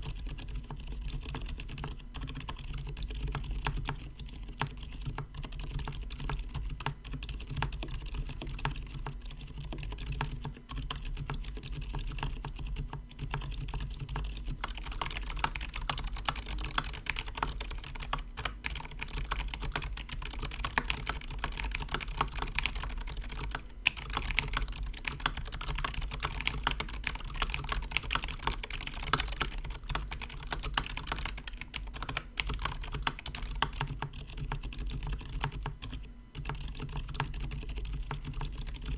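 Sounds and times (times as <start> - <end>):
dampened keyboard typing: 0.0 - 38.9.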